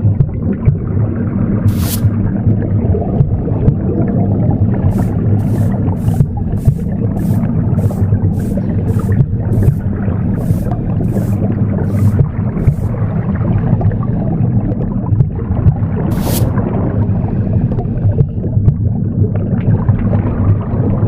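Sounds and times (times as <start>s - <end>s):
broom sweeping: 1.7s - 2.2s, 4.9s - 13.0s, 16.1s - 16.6s
womb sound whooshing rumble: 4.8s - 13.2s.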